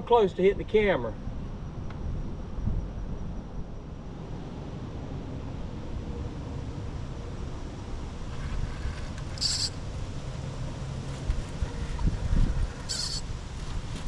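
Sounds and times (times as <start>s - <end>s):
wind rumble on microphone: 0.5s - 14.0s
short high-pitched chirp: 9.4s - 9.8s.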